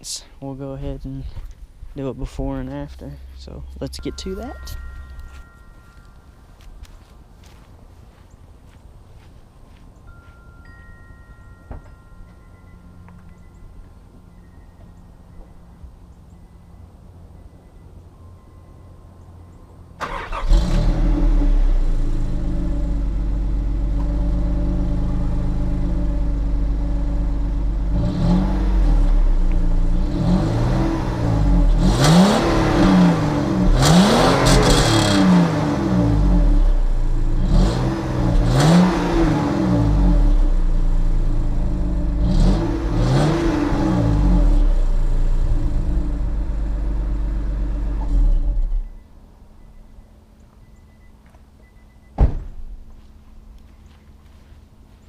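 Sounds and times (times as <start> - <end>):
car engine starting: 19.9 - 49.6
car engine revving: 20.0 - 48.8
car engine idling: 21.2 - 28.0.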